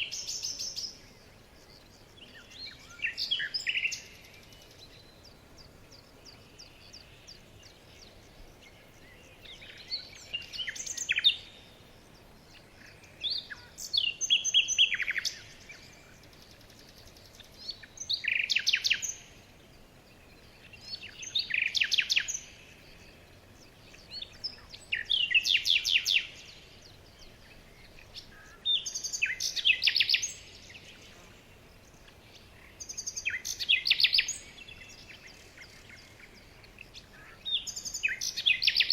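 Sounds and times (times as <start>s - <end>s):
small bird trilling song: 12.5s - 19.4s, 20.4s - 31.0s, 31.8s - 38.9s.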